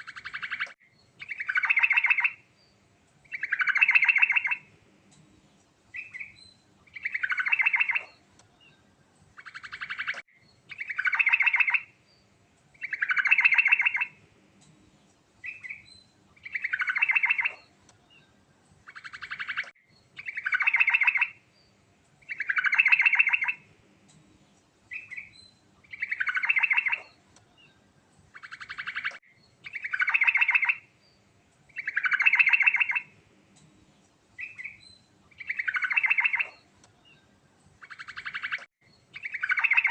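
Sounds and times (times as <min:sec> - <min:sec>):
bulbul trilled song: 0:00.0 - 0:02.4, 0:03.2 - 0:04.7, 0:09.4 - 0:12.0, 0:12.8 - 0:14.2, 0:18.9 - 0:21.4, 0:22.2 - 0:23.7, 0:24.9 - 0:27.2, 0:28.4 - 0:30.9, 0:31.7 - 0:33.2, 0:34.4 - 0:36.7, 0:37.7 - 0:39.9.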